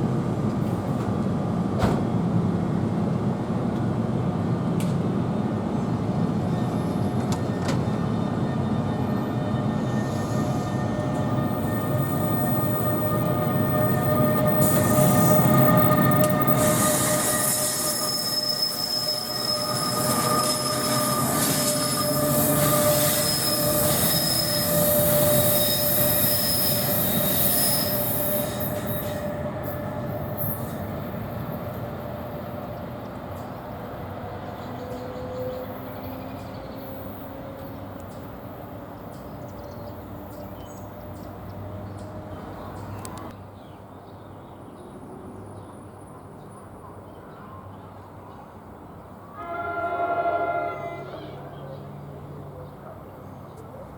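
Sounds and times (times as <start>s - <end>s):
train cars rumbling: 0.0s - 43.4s
train wheels squealing: 6.4s - 43.3s.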